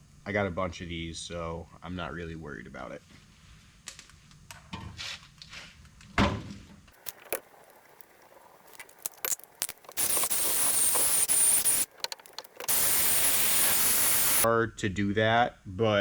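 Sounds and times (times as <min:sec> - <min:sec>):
metal parts clicking and knocking: 0:07.0 - 0:14.4
drill with wire wheel scrubbing: 0:07.0 - 0:14.5.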